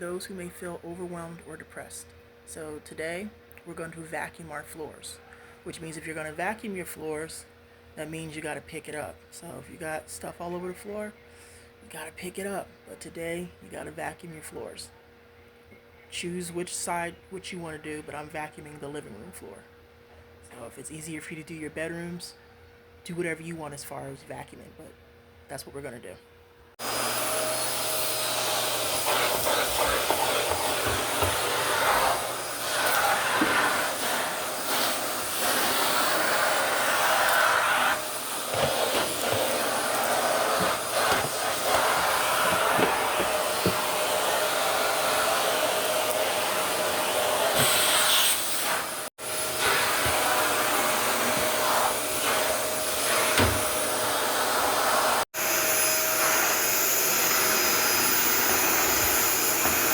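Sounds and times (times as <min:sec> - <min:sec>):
vacuum cleaner running: 0:26.7 - 0:59.9.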